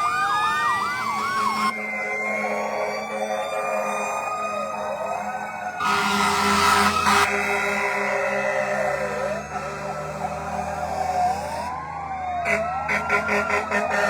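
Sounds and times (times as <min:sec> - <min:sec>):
fire truck sirens wailing: 0:00.0 - 0:14.0
horn blast: 0:12.5 - 0:14.0.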